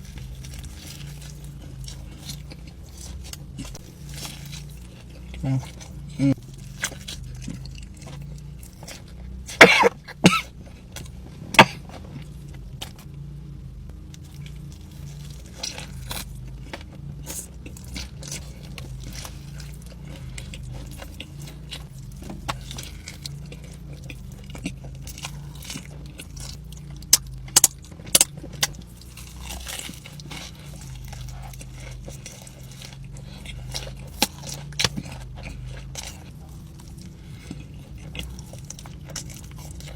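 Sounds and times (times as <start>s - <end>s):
crisp bites and crunches: 0.0s - 13.2s, 14.0s - 39.9s
steady low hum: 0.0s - 39.9s
chewing clicks: 19.8s - 39.9s.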